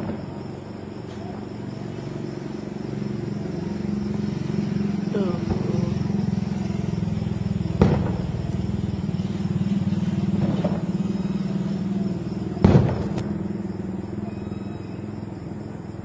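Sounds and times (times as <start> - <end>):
firework bangs: 0.0 - 1.7, 4.3 - 14.1
low engine drone: 0.0 - 16.0.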